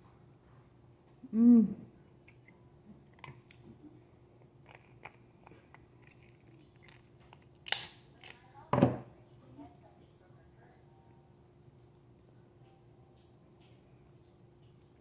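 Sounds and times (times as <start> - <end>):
person chewing: 4.6 - 7.8.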